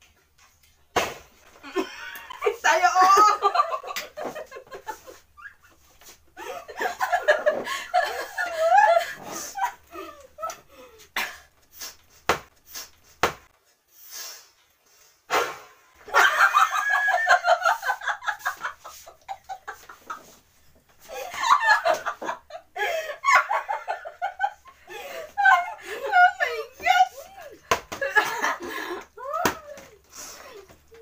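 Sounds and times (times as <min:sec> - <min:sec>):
women laughing and shrieking: 0:01.6 - 0:03.8, 0:06.4 - 0:10.5, 0:16.1 - 0:18.7, 0:21.1 - 0:31.0.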